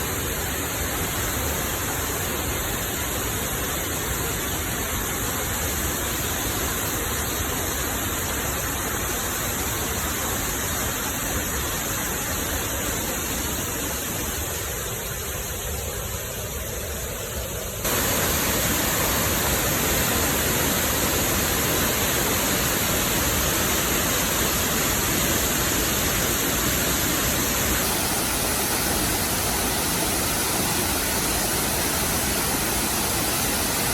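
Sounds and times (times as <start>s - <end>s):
waterfall rushing: 17.9s - 33.9s.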